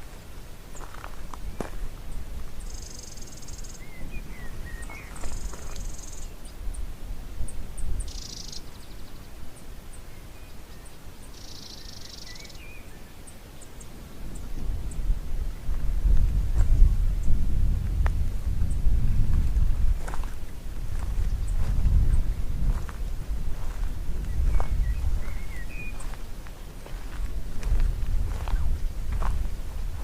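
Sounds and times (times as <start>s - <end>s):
buzzy high-pitched bird trills: 2.6s - 6.4s, 8.0s - 9.2s, 11.3s - 12.6s
short lower bird chirps: 2.6s - 6.4s, 8.0s - 9.2s, 10.4s - 13.1s, 24.3s - 26.0s
steady low rumble: 13.9s - 30.0s.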